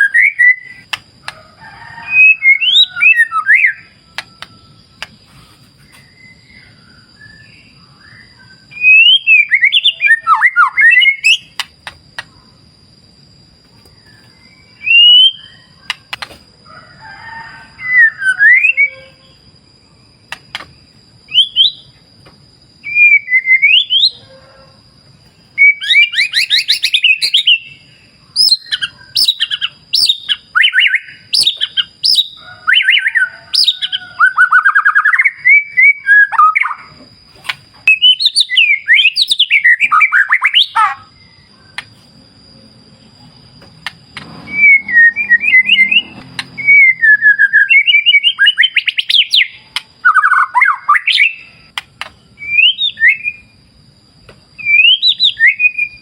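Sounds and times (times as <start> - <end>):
bird singing whistles and trills: 0.0 - 1.0, 2.1 - 5.1, 5.8 - 12.4, 13.8 - 16.2, 17.7 - 19.5, 20.3 - 22.0, 22.8 - 24.3, 25.5 - 37.0, 37.8 - 41.8, 44.4 - 53.6, 54.6 - 56.0.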